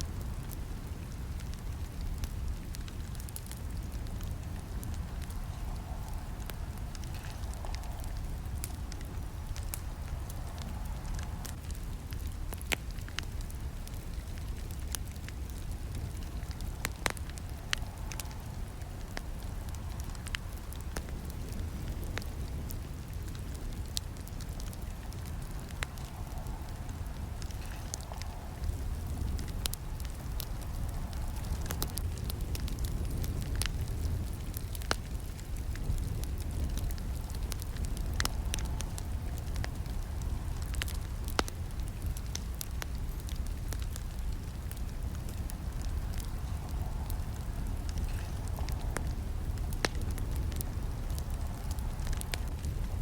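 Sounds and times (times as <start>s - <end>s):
campfire flames rumbling: 0.0s - 53.0s
fire crackling and snapping: 0.0s - 53.0s.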